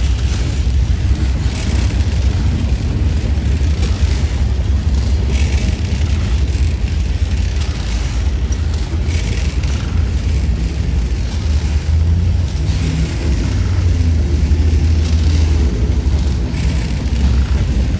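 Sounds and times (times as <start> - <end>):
freight train cars rolling past: 0.0 - 17.9.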